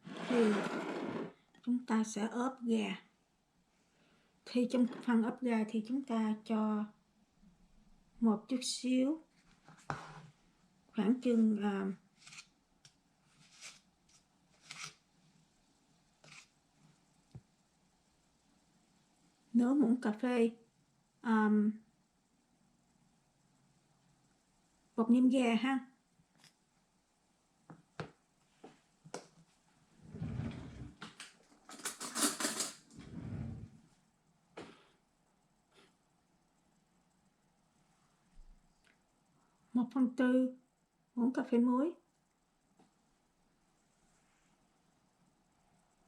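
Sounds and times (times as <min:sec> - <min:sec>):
rustling and scraping: 0:00.0 - 0:01.4, 0:09.3 - 0:10.4, 0:12.2 - 0:12.5, 0:13.2 - 0:15.0, 0:16.2 - 0:17.0, 0:28.5 - 0:34.0
teaspoon scraping powder: 0:13.4 - 0:15.0, 0:16.2 - 0:16.5.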